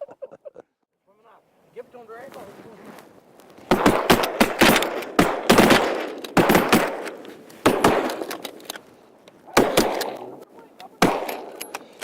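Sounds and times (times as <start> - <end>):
shotgun shots echoing: 3.7 - 8.6, 9.5 - 12.0.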